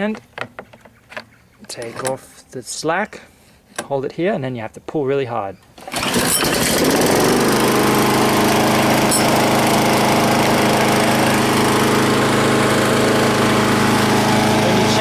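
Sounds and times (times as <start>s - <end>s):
lawnmower engine running: 5.8s - 15.0s.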